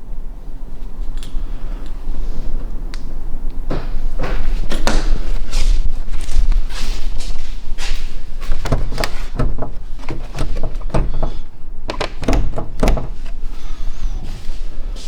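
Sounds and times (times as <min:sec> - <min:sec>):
irregular knocks and thuds: 0:08.4 - 0:13.6.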